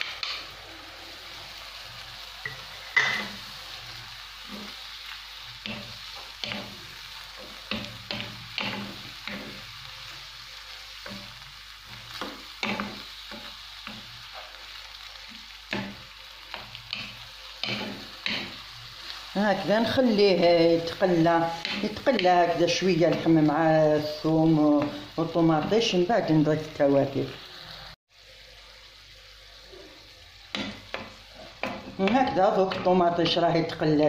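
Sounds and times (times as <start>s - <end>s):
meat sizzling in a frying pan: 0.0s - 34.0s
wooden spatula scraping a pan: 4.4s - 14.6s.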